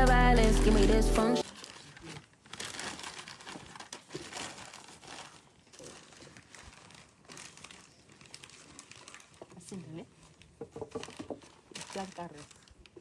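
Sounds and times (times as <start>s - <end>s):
crinkling and rustling: 0.4s - 13.0s.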